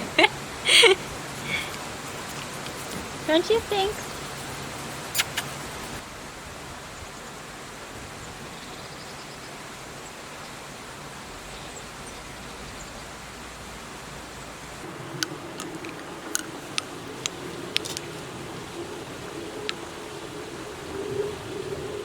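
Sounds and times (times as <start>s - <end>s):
outdoor ambience hiss: 0.0s - 22.0s
short sharp click: 5.2s - 5.6s.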